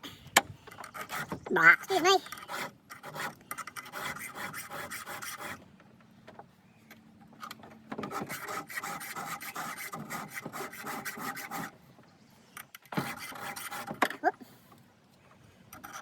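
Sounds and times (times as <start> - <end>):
file rasping on chainsaw chain: 0.7 - 5.6, 8.1 - 11.7, 12.8 - 14.2.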